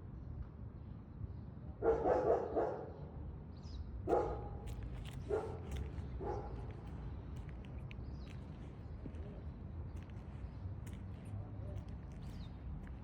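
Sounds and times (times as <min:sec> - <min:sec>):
dog barking: 0:01.8 - 0:03.0, 0:04.1 - 0:04.6, 0:05.2 - 0:06.7.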